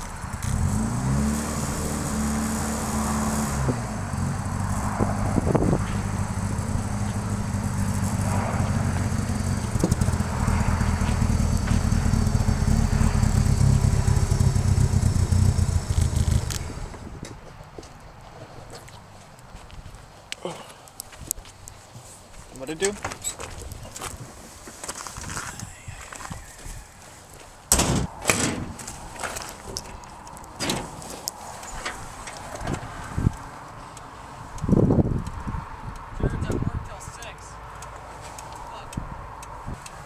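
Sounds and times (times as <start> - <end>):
car engine running: 0.0 - 17.1.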